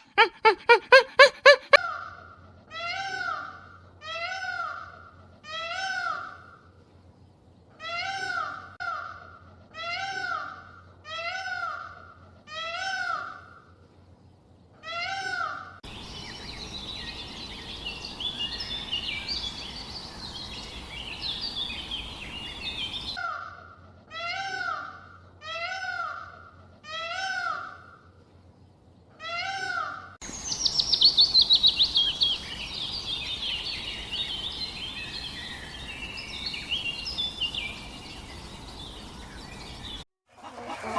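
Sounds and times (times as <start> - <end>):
falling bird trill: 0.0 - 1.8
songbird chirping: 0.0 - 1.8, 15.9 - 23.2, 30.2 - 40.1
steady outdoor hiss: 15.8 - 23.2, 30.2 - 40.0.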